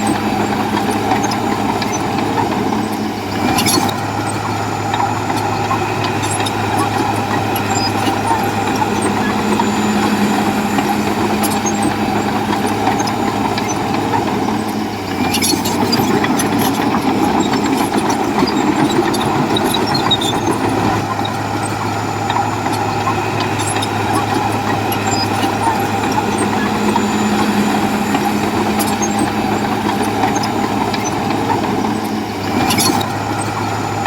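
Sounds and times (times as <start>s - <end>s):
bulldozer diesel engine droning: 0.0s - 34.0s.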